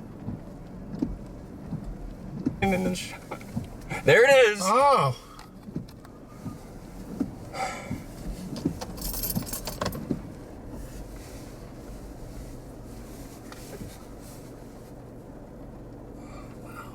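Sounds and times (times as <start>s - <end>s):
car cabin hum: 0.0s - 16.9s.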